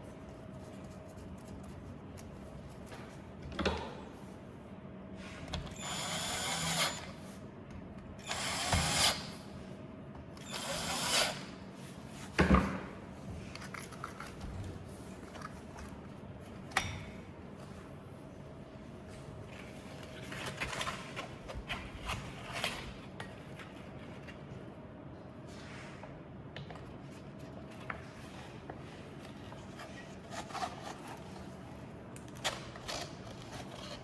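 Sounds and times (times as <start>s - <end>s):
power drill-driver bursts: 5.7s - 7.1s, 8.2s - 9.3s, 10.4s - 11.4s.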